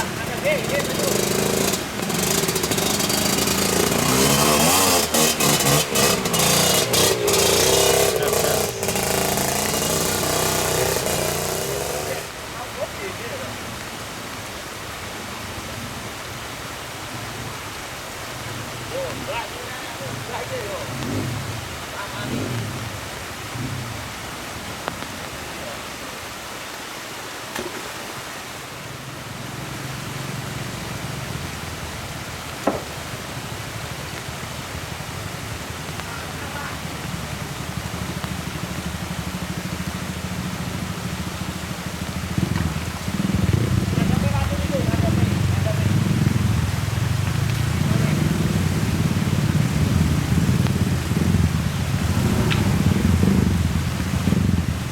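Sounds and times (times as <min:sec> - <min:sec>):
motorcycle engine running: 0:00.0 - 0:12.4, 0:36.9 - 0:54.9
steady hiss: 0:00.0 - 0:54.9.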